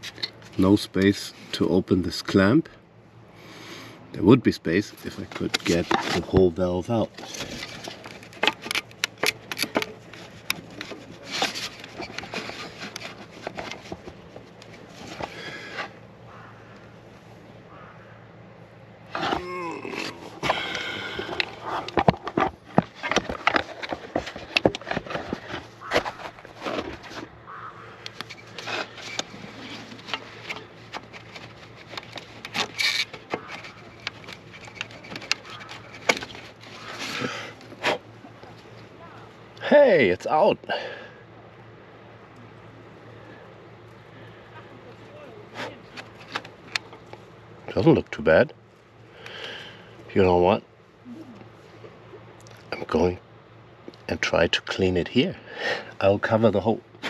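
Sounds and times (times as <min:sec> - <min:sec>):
tools clicking and knocking: 0:07.2 - 0:11.0
small metallic clicks and knocks: 0:07.2 - 0:15.2.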